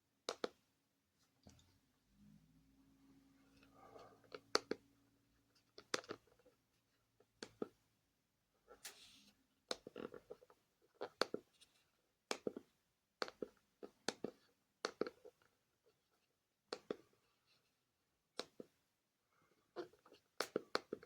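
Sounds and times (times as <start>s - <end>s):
plastic clicks and taps: 0.3s - 0.6s.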